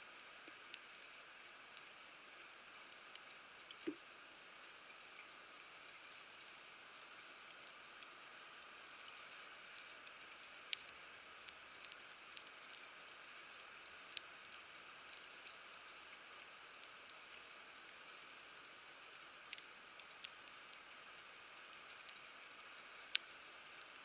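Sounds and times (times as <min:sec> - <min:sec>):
campfire crackling: 0:22.0 - 0:24.0.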